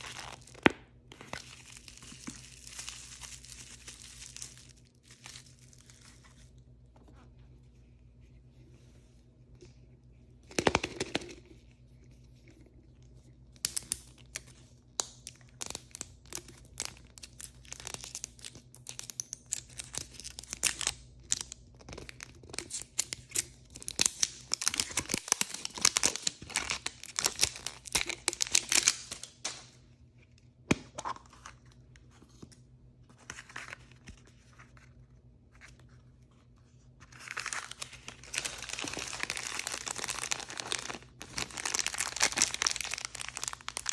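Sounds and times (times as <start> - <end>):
plastic packaging tearing and crinkling: 0.0 - 6.5, 13.6 - 29.5, 37.1 - 43.9.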